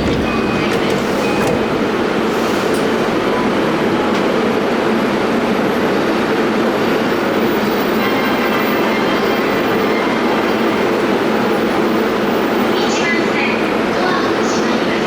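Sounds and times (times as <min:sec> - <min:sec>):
electric train running: 0:00.0 - 0:02.9.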